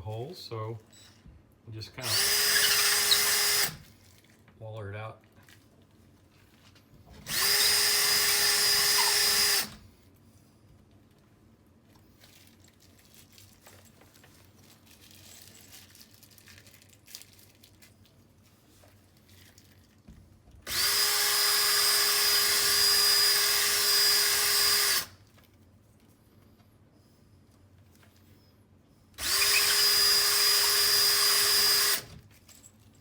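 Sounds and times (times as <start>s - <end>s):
power drill running: 2.0s - 3.8s, 7.2s - 9.8s, 20.6s - 25.1s, 29.2s - 32.2s.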